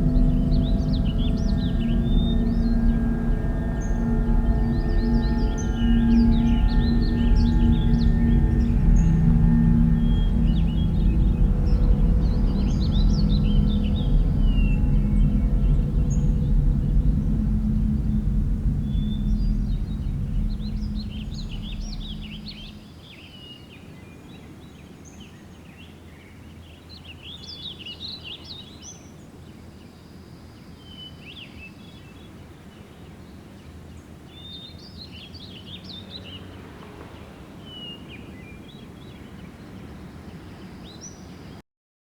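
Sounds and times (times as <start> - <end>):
birds chirping: 0.0 - 22.8
loud low rumble: 0.0 - 23.0
steady low rumble: 0.0 - 23.0.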